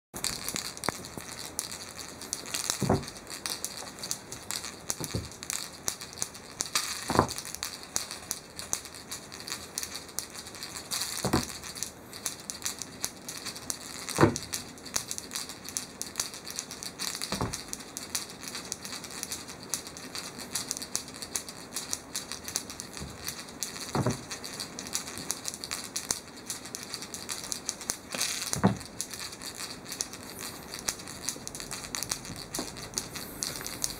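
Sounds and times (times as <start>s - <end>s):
thump on floor: 2.8s - 3.2s, 7.1s - 7.4s, 11.2s - 11.5s, 14.2s - 14.4s, 17.3s - 17.6s, 24.0s - 24.2s, 28.6s - 28.8s.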